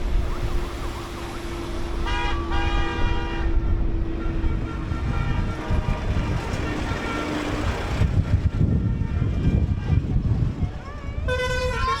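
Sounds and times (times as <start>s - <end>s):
tractor and truck engines rumbling: 0.0s - 12.0s
air horn blast: 2.0s - 10.3s, 11.1s - 12.0s.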